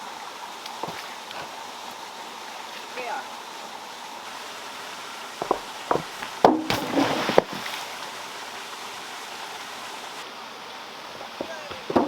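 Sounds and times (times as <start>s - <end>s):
running water hiss: 0.0s - 12.0s
sharp clattering knocks: 5.4s - 7.5s.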